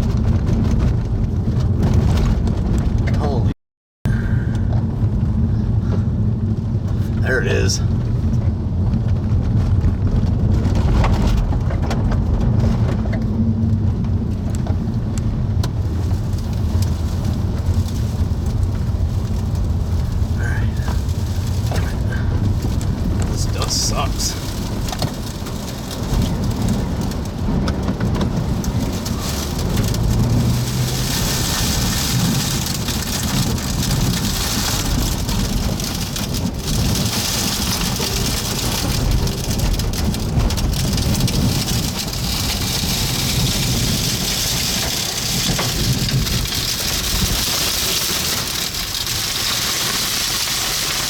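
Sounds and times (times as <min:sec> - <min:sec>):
wind rumbling on microphone: 0:00.0 - 0:03.5, 0:04.1 - 0:51.0
rain or dust pelting hiss: 0:16.1 - 0:27.6, 0:28.4 - 0:51.0.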